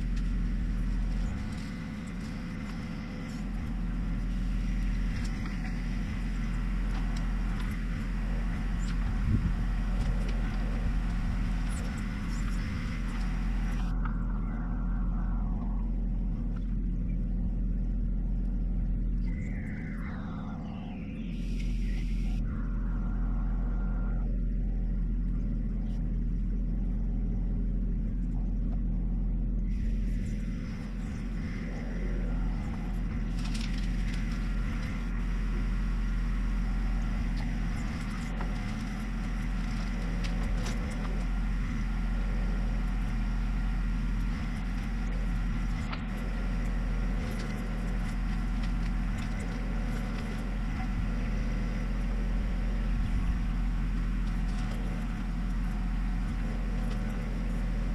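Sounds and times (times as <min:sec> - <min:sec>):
tractor diesel engine running: 0:00.0 - 0:57.9
clatter: 0:25.3 - 0:57.9.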